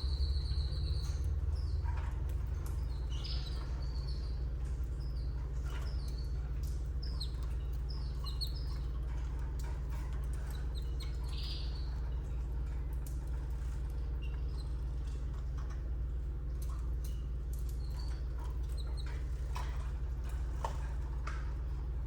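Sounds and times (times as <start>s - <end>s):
canaries chirping: 0.0s - 1.8s, 2.6s - 6.2s, 7.0s - 8.9s, 10.4s - 12.0s
low electrical hum: 0.0s - 22.0s.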